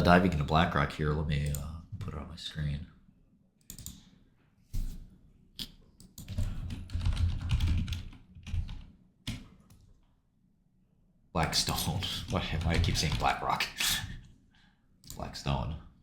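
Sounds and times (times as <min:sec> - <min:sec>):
typing on computer keyboard: 0:03.7 - 0:04.0, 0:06.0 - 0:09.8.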